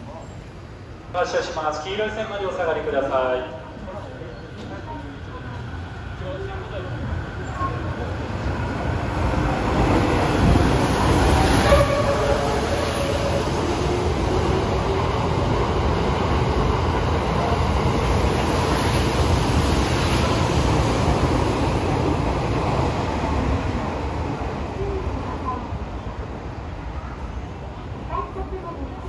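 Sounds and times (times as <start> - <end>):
train wheels rumbling and rattling: 3.9 - 26.2
train music horn tones: 11.5 - 13.3.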